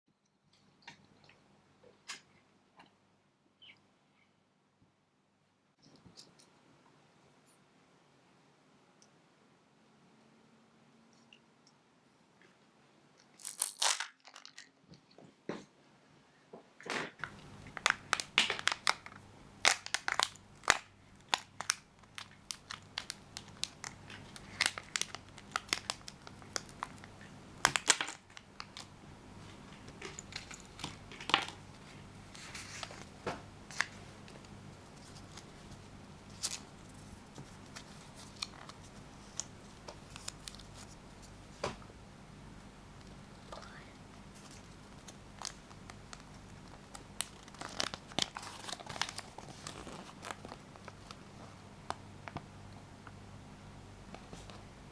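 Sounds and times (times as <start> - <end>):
foil wrapper crinkling and tearing: 13.4 - 14.7, 17.2 - 28.9, 29.8 - 41.0, 44.4 - 52.4.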